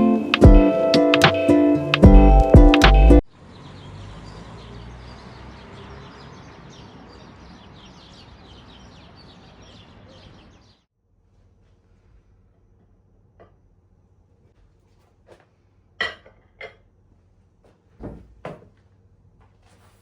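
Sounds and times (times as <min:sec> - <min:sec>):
small birds chirping: 0:00.0 - 0:10.9.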